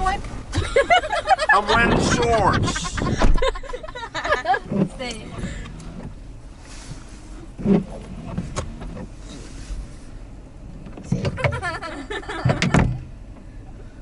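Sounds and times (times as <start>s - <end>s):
windshield wiper motor hum: 0.0s - 13.9s
wiper thumps: 1.8s - 6.2s, 10.9s - 13.1s.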